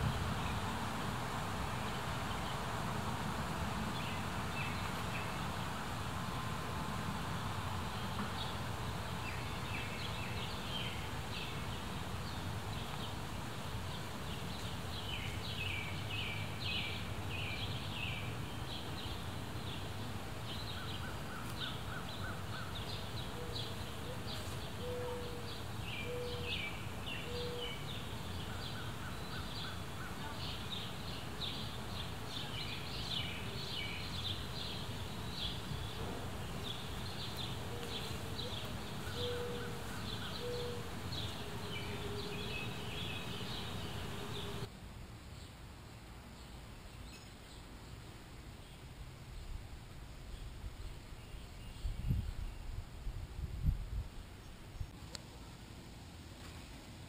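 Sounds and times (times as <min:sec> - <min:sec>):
birds chirping: 0:13.8 - 0:44.7
bird calling lower notes: 0:37.7 - 0:40.9.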